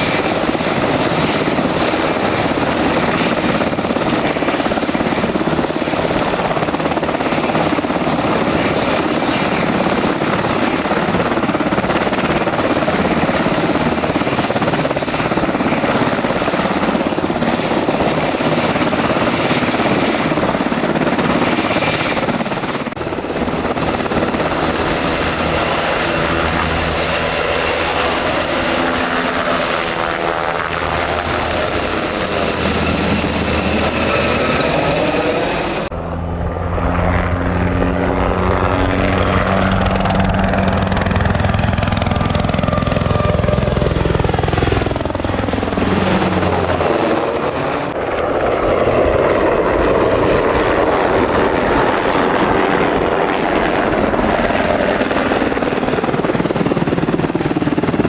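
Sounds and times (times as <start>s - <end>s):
helicopter rotor rush: 0.0s - 58.0s
high turbine whine: 17.1s - 52.2s.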